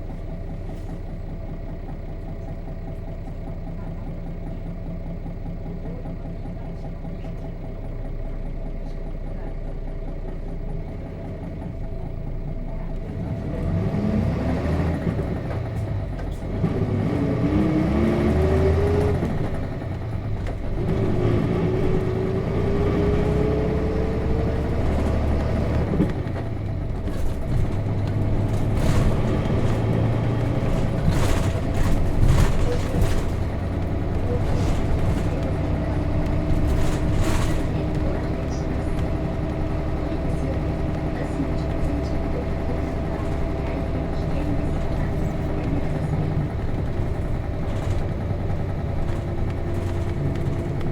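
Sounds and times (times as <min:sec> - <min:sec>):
bus diesel engine: 0:00.0 - 0:50.9
rattles and knocks: 0:19.2 - 0:50.9.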